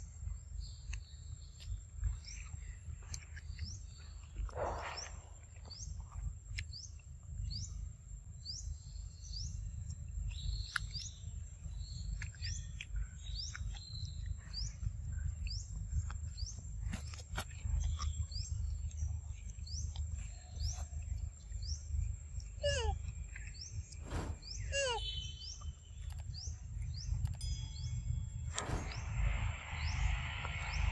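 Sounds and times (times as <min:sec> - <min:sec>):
birds chirping: 0:00.0 - 0:07.8, 0:08.4 - 0:30.9
steady low rumble: 0:00.0 - 0:30.9
descending bird notes: 0:23.7 - 0:30.9.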